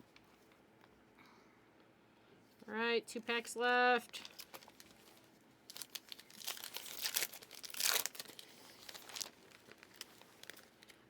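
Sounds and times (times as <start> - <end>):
foil wrapper crinkling and tearing: 4.1 - 11.0.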